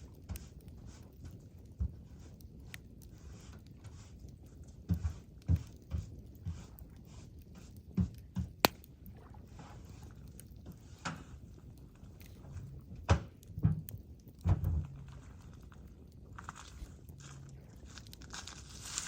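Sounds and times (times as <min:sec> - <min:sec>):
campfire hissing: 0:00.0 - 0:19.0
wood popping crack: 0:08.0 - 0:09.1, 0:12.1 - 0:17.2.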